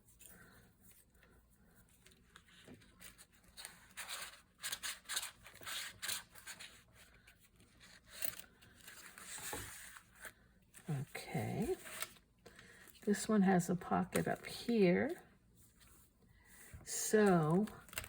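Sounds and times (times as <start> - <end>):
paper and card rustling: 0.1 - 18.0.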